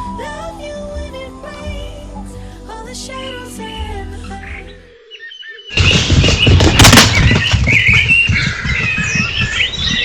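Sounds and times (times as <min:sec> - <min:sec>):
small birds chirping: 0:04.2 - 0:10.0.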